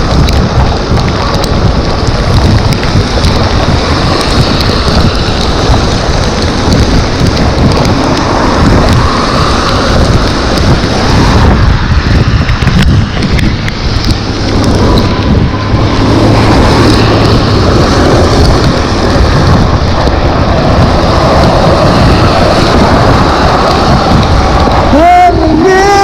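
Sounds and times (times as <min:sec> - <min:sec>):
wind buffeting microphone: 0:00.0 - 0:26.0
hiss of wet tyres: 0:07.9 - 0:12.5.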